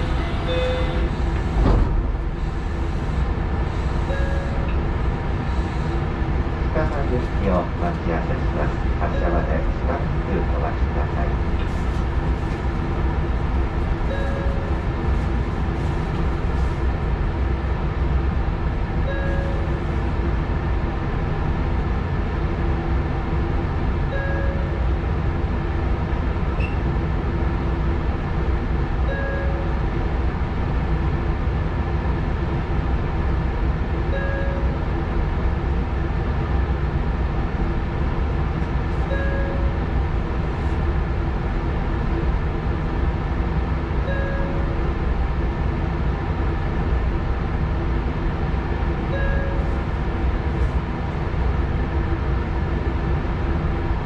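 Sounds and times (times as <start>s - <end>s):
electric train equipment hum: 0.0s - 54.0s.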